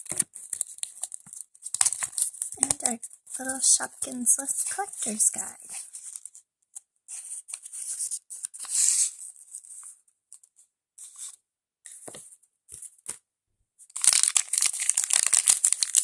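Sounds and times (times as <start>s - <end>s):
plastic packaging tearing and rustling: 0.0s - 6.4s, 13.9s - 16.0s.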